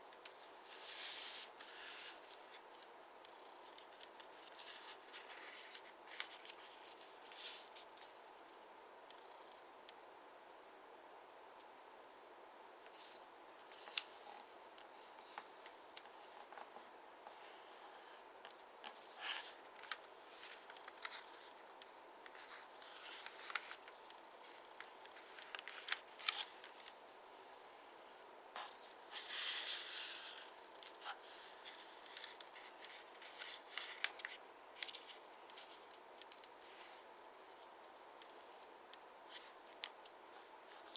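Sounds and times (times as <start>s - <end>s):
paper being folded and creased: 0.2s - 8.2s, 12.9s - 27.0s, 28.6s - 37.0s
paper rustle: 0.2s - 8.6s, 12.9s - 27.2s, 28.6s - 37.6s.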